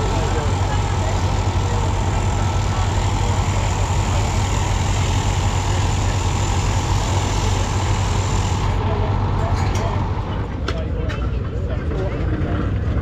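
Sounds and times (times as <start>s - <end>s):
engine running with deep hum: 0.0s - 13.0s.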